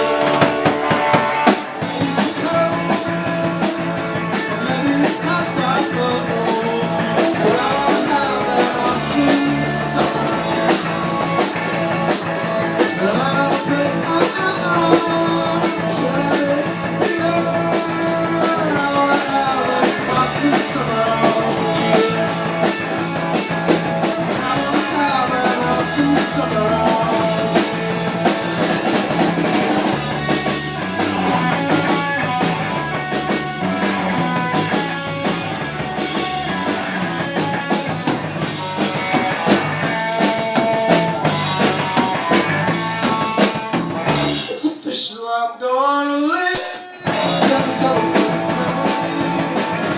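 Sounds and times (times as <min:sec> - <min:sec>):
live rock band playing: 0:00.0 - 0:45.1, 0:46.4 - 0:49.9.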